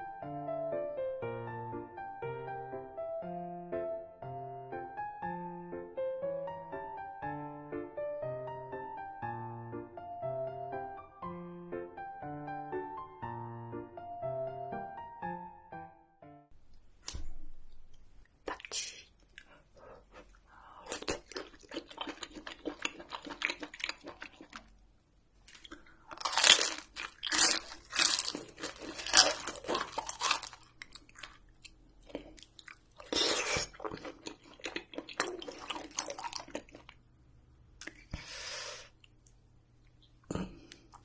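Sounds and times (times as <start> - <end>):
person chewing with crunchy wet bites: 19.3 - 24.8, 25.5 - 37.0.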